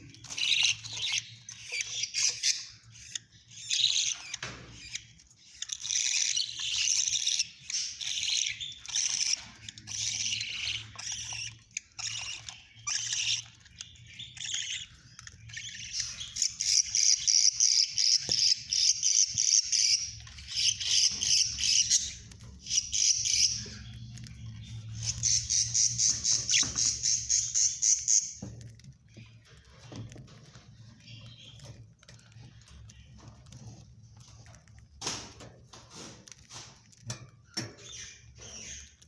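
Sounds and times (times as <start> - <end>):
budgerigar chicks chirping: 0.0 - 39.0.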